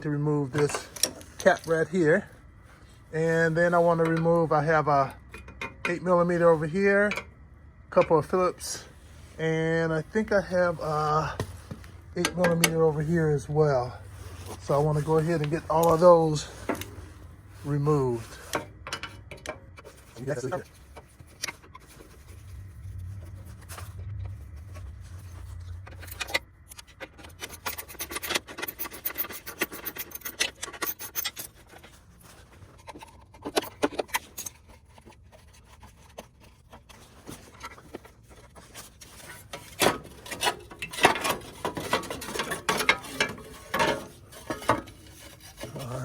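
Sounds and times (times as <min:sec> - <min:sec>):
metal and plastic scraping: 0:00.0 - 0:07.3, 0:07.9 - 0:46.0
hand tools clicking and ticking: 0:26.0 - 0:31.8
engine cover clattering: 0:37.2 - 0:46.0.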